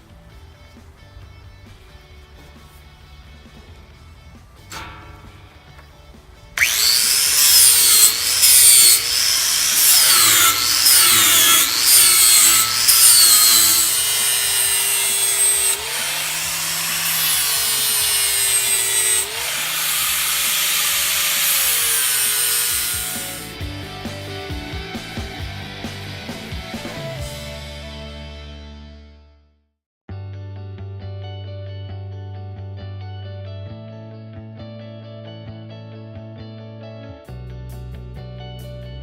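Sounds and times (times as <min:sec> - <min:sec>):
angle grinder grinding steel: 0:06.6 - 0:23.8.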